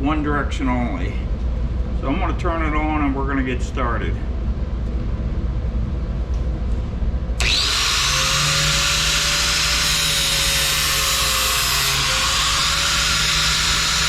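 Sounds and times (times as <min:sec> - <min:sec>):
electric grinder whining: 0:07.4 - 0:14.0.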